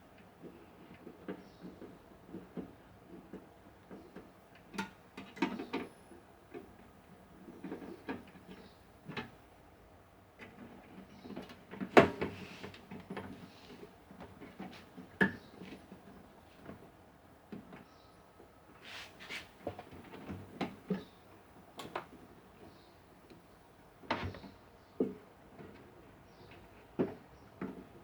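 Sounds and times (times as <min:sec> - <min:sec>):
light clicks and knocks of handling: 0:00.1 - 0:09.4.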